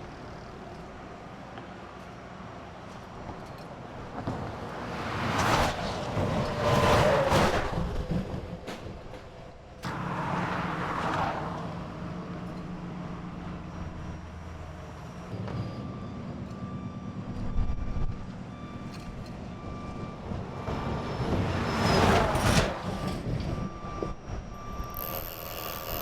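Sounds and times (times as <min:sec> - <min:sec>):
heavy vehicle engines running: 0:00.0 - 0:26.0
backup alarm beeping: 0:13.4 - 0:25.8.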